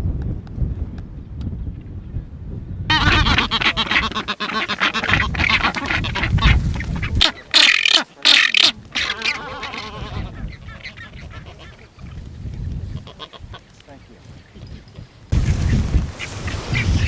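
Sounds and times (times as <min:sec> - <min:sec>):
chorus of birds calling: 0:02.9 - 0:12.2, 0:15.4 - 0:17.0.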